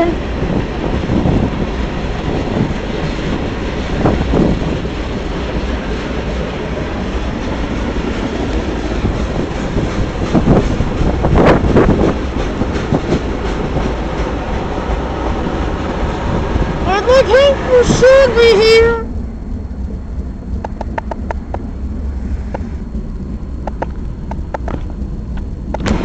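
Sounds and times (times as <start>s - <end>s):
train wheels clacking on rails: 0.0s - 18.9s, 23.5s - 26.0s.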